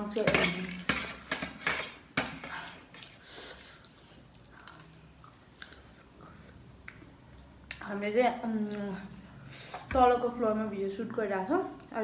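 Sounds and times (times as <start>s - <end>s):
utensils clinking against a dish: 0.0s - 3.2s.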